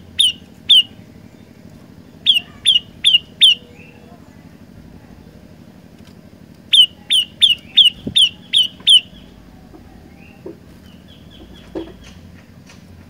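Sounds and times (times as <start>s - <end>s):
bird calling sharp high notes: 0.0s - 1.1s, 2.2s - 4.1s, 6.7s - 9.4s.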